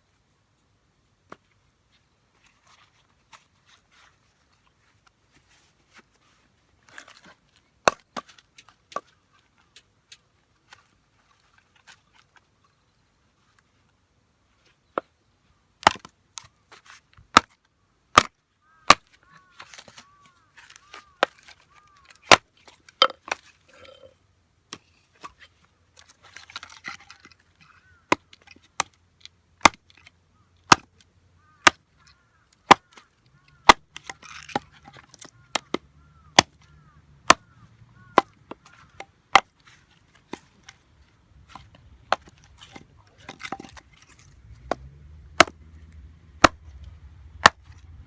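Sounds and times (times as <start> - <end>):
wood being chopped: 7.8 - 8.3, 15.8 - 16.1, 17.3 - 18.3, 18.9 - 19.1, 20.7 - 24.0, 29.6 - 30.1, 30.7 - 31.0, 31.6 - 31.8, 32.7 - 33.0, 33.6 - 39.6, 41.5 - 46.8, 47.4 - 47.8.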